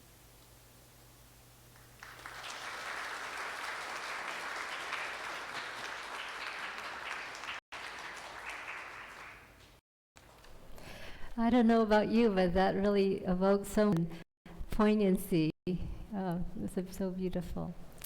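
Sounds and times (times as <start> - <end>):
audience applauding: 1.8 - 9.8.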